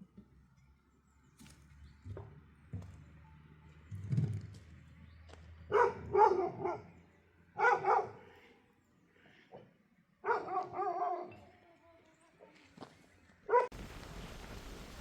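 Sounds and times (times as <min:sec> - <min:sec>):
dog barking: 0:05.7 - 0:07.0, 0:07.6 - 0:08.4, 0:10.2 - 0:11.5, 0:13.5 - 0:13.7.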